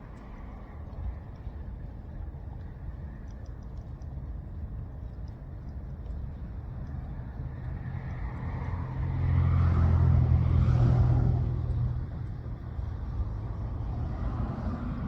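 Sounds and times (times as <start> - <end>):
vehicle engine rumbling: 4.3 - 15.0.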